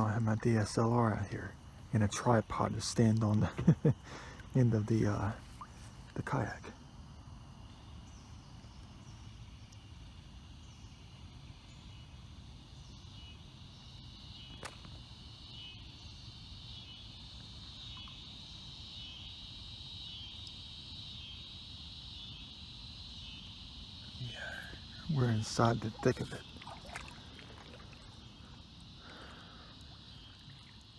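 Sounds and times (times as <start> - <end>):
low outdoor rumble: 0.0 - 7.3, 24.0 - 30.8
insects chirping: 0.0 - 30.9.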